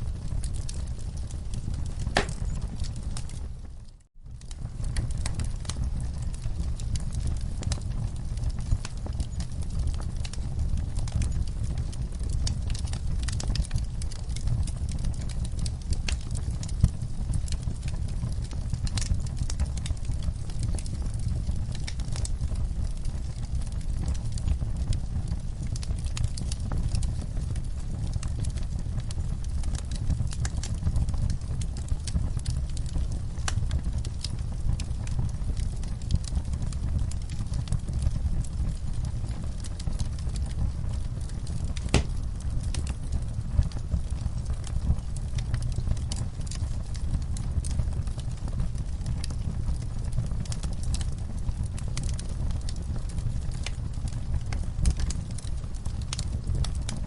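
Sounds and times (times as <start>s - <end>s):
fire popping and clicking: 0.0s - 57.0s
low rumble of flames: 0.0s - 57.0s
logs crackling and snapping: 0.5s - 3.4s, 4.4s - 17.9s, 18.6s - 27.4s, 28.1s - 53.0s, 53.6s - 57.0s
sharp pop from fire: 2.1s - 2.6s, 41.9s - 42.2s.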